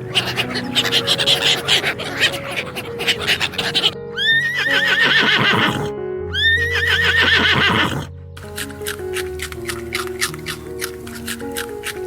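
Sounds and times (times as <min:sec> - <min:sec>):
horse whinnying: 0:00.0 - 0:08.1.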